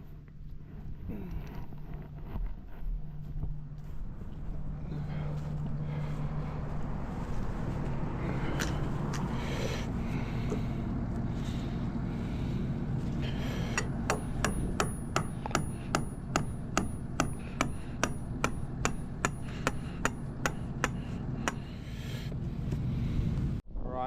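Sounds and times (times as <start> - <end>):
hammer blows on metal pin: 13.6 - 21.8.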